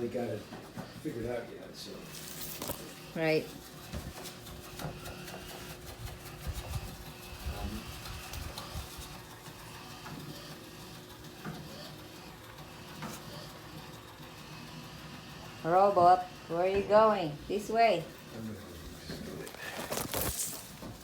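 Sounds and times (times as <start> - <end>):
robot vacuum motor hum: 0.0 - 21.0.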